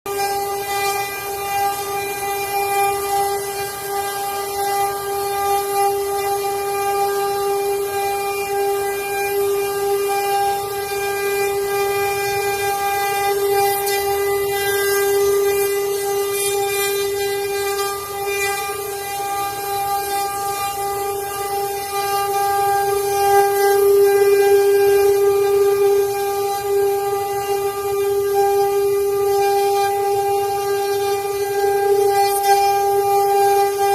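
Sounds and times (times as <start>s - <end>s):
router spindle motor whining: 0.1s - 33.9s.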